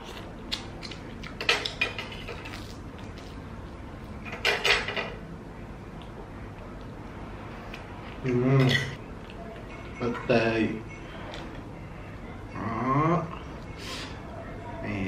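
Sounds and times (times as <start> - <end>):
cutlery clinking against a pan: 1.4 - 2.6, 4.2 - 5.2.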